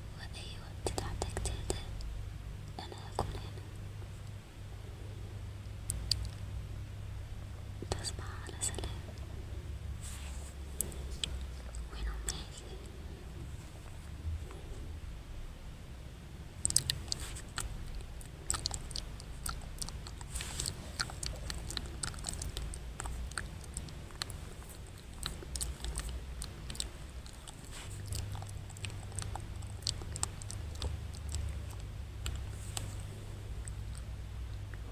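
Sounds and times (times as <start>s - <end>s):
wet mouth clicks and lip smacks: 16.6s - 34.1s.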